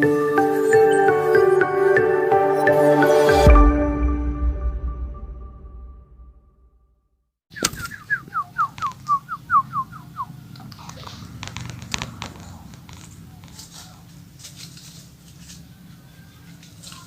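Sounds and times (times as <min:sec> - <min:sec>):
bird whistling song: 0:07.5 - 0:10.3.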